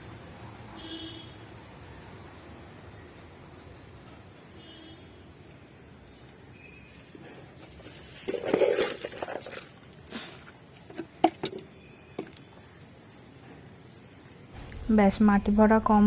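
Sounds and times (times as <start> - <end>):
soil scraping and rustling: 6.7 - 11.2.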